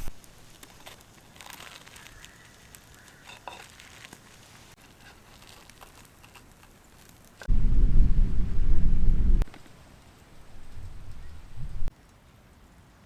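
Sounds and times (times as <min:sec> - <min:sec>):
faint clicks and crinkling: 0:00.0 - 0:07.5.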